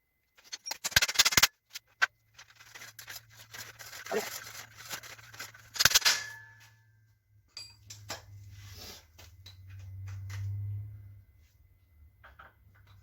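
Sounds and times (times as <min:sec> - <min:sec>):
metal clanking on bicycle parts: 0:03.6 - 0:06.8.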